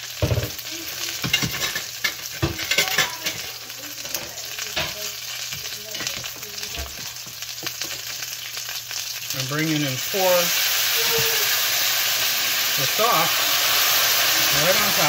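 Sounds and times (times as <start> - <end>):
food sizzling in oil: 0.0 - 15.0
spoon knocking a saucepan: 0.2 - 0.6, 1.2 - 3.5.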